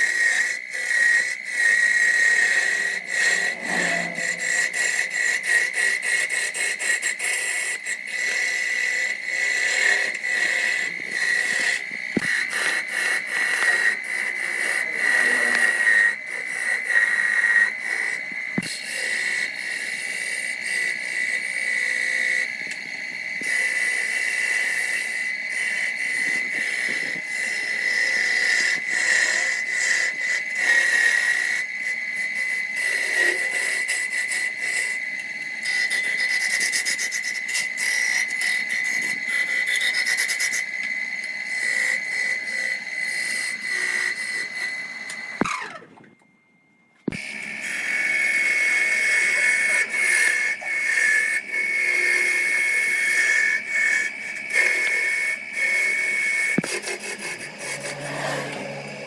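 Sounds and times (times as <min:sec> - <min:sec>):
tool rubbing on wood: 0:00.0 - 0:22.4, 0:48.9 - 0:59.0
power tool motor whine: 0:00.0 - 0:46.3, 0:47.0 - 0:59.0.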